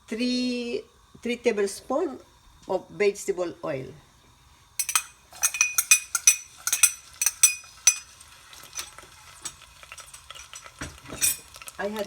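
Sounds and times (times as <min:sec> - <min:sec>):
spoon clinking against pan: 0:04.8 - 0:08.2.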